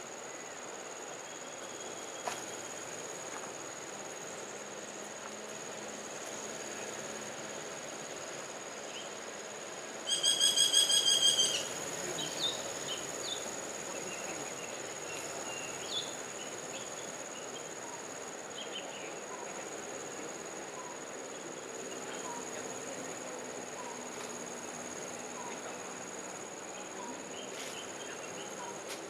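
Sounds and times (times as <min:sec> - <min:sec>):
high insect whine: 0:00.0 - 0:29.0
woodpecker calling: 0:10.1 - 0:17.7.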